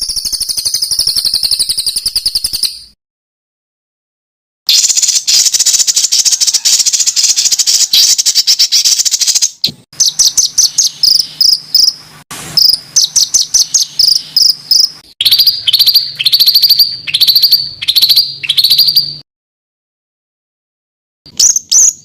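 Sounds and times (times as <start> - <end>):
songbird trilling: 4.7 - 12.0, 12.6 - 19.2
sharp high bird notes: 12.6 - 19.2.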